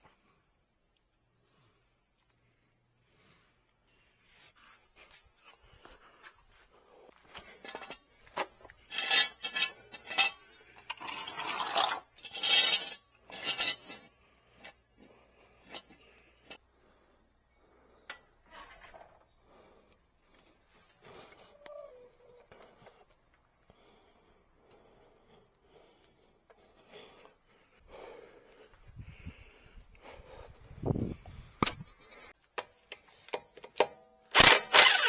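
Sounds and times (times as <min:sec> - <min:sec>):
tools and parts clinking: 0:07.2 - 0:16.6, 0:31.6 - 0:35.0.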